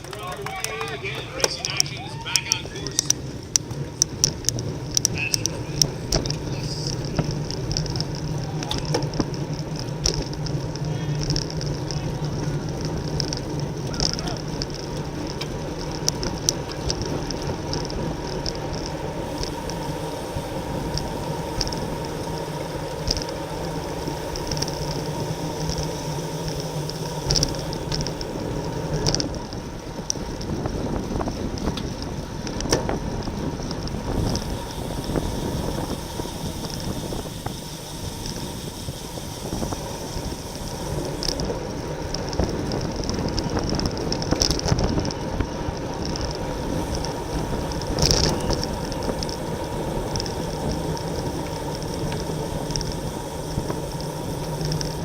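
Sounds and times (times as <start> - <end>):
sharp clicks: 0.0 - 10.6
bicycle road noise: 0.0 - 55.0
wind rushing over microphone: 1.0 - 55.0.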